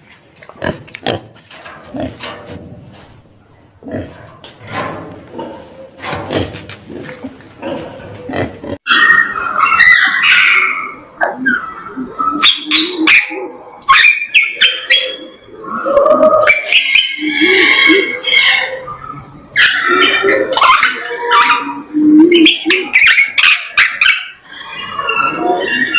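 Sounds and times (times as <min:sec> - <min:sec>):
animal squeals and cries: 0:08.2 - 0:25.9.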